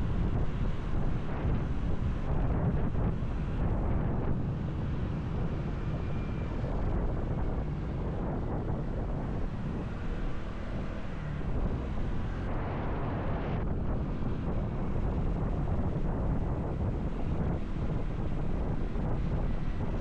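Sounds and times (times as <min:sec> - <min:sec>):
wind rushing on microphone: 0:00.0 - 0:20.0.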